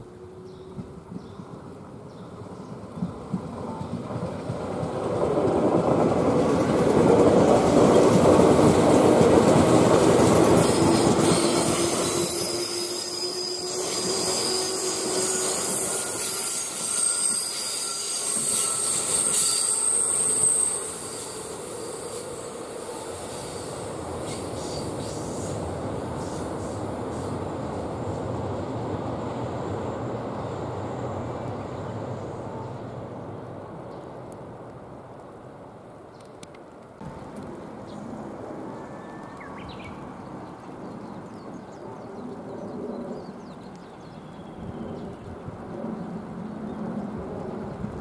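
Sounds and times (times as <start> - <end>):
approaching train rumble: 0.0 - 36.1, 36.9 - 48.0
train wheels rumbling and clattering: 0.6 - 29.5
high wheel squeal: 10.2 - 25.6.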